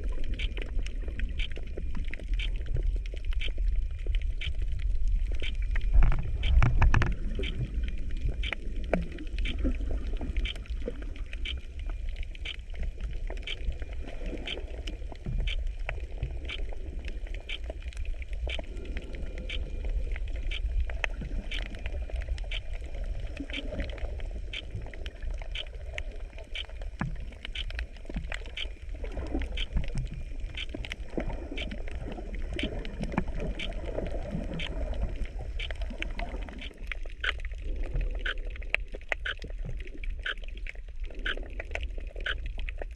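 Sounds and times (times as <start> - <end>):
underwater rumble of moving water: 0.0 - 42.9
faint regular ticking: 0.2 - 33.9, 34.5 - 39.5, 40.2 - 40.5.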